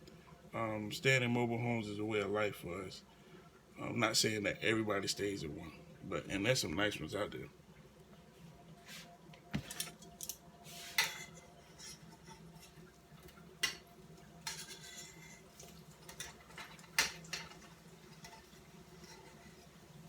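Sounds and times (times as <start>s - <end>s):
metal utensils clinking on frying pan: 11.0s - 19.9s.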